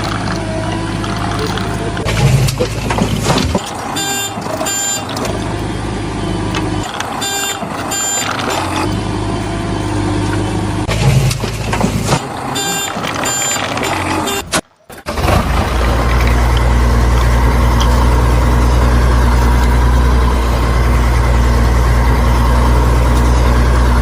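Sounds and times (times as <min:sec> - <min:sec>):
recorded toy engine rumble: 0:00.0 - 0:24.0
electronic beeps: 0:03.6 - 0:09.0, 0:12.5 - 0:14.6.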